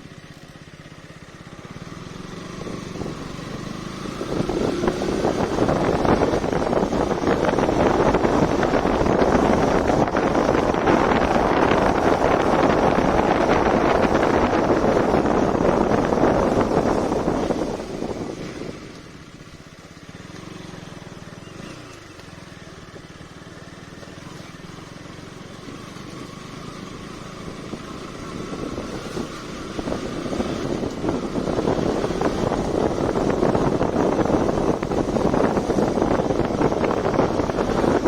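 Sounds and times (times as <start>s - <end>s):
motorcycle engine: 0.0s - 38.0s
wind buffeting microphone: 2.2s - 19.3s, 25.1s - 38.0s.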